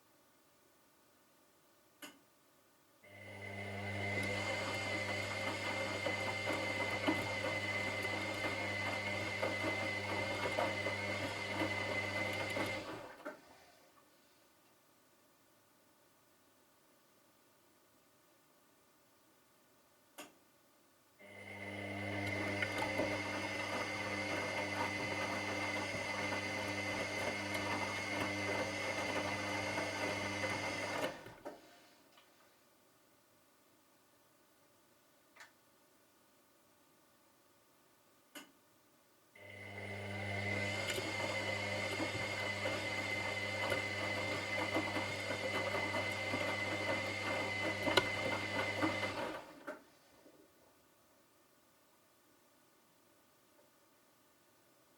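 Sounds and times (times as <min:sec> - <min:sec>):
washing machine running: 0:03.5 - 0:13.2, 0:21.5 - 0:31.3, 0:39.5 - 0:49.6.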